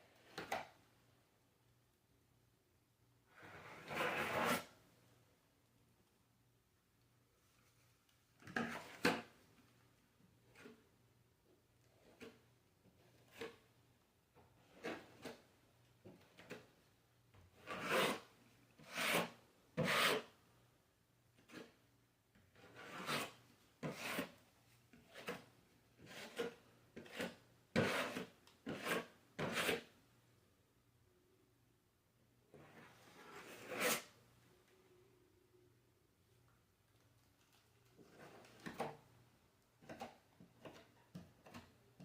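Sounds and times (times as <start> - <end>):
hand tool rasping on drywall: 3.4 - 4.7, 17.6 - 20.4, 22.6 - 29.9, 32.6 - 34.1.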